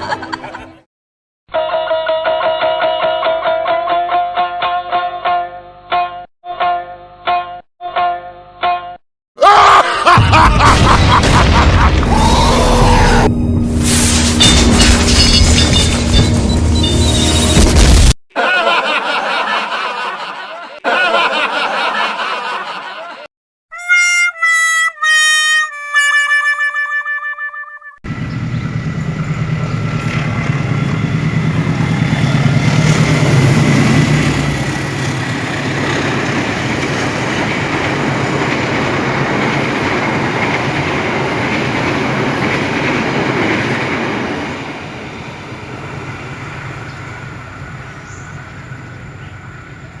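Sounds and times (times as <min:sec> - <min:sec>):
train wheel and track noise: 0:28.1 - 0:50.0.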